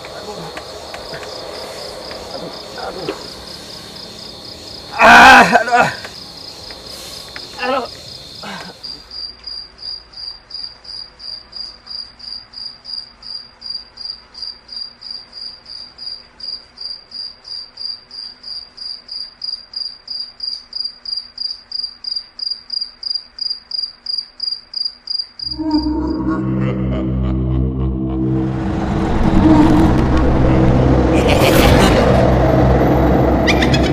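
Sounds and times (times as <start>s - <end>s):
insect trilling and chirping: 0.1s - 26.0s
loud low humming: 25.4s - 33.9s.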